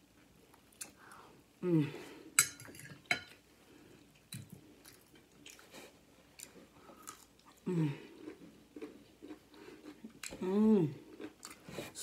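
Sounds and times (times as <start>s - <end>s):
chewing and biting food: 4.4s - 10.4s.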